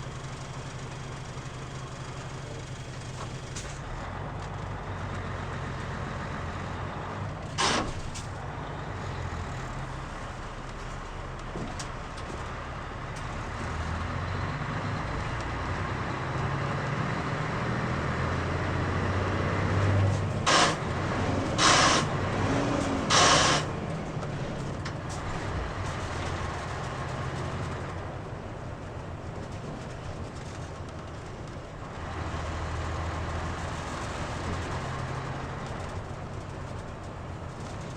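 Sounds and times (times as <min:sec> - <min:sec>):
bus diesel engine running: 0:00.0 - 0:37.9
air brake hisses: 0:20.5 - 0:20.8, 0:21.5 - 0:22.2, 0:23.0 - 0:23.7.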